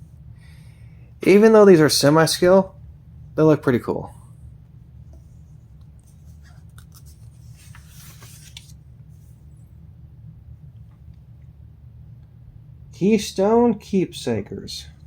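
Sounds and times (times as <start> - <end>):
steady low hum: 0.0 - 15.0
paper rustling and sliding: 6.0 - 9.4.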